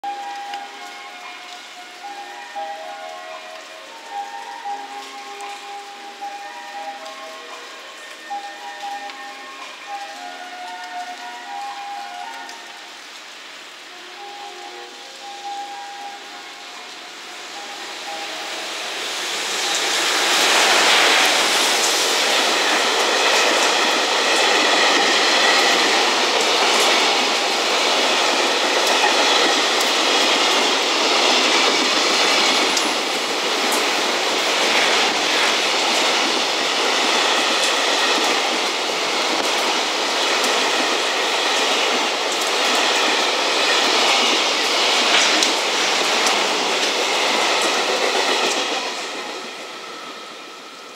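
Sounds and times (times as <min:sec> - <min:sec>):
wheel-on-rail noise: 0:00.0 - 0:50.9
clickety-clack over rail joints: 0:19.6 - 0:49.6.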